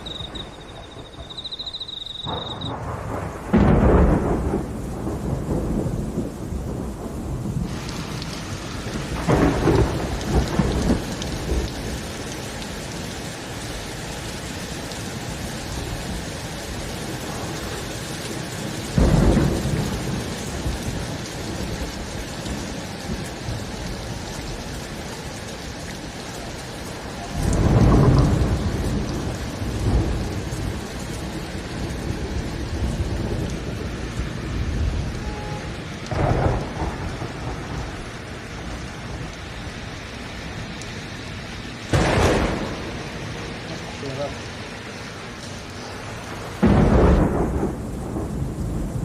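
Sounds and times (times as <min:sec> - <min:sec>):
thunder: 0:00.0 - 0:12.1, 0:18.4 - 0:23.8, 0:27.2 - 0:39.3, 0:41.9 - 0:43.5, 0:46.2 - 0:49.0
steady rain: 0:00.0 - 0:49.0.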